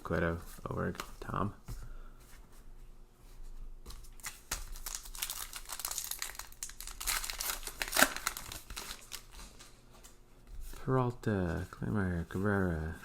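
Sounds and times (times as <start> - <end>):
wrapper tearing and crinkling: 4.2 - 9.7.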